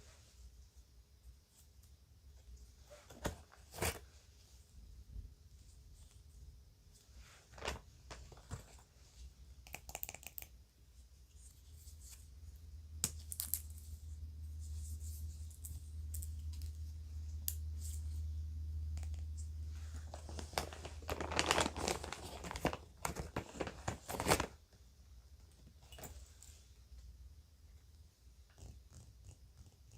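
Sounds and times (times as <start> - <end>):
crinkly bag rustling: 19.7 - 24.6.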